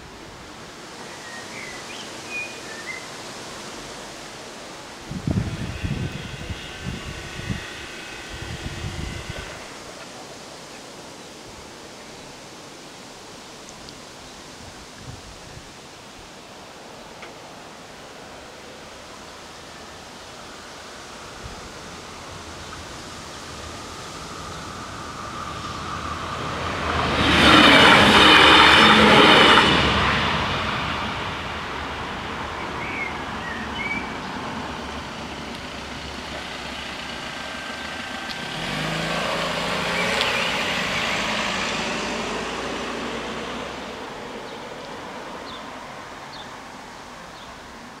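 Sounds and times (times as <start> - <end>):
train running and wheel noise: 0.0 - 12.0, 17.2 - 47.7
low train hum: 3.4 - 11.1, 17.4 - 47.8.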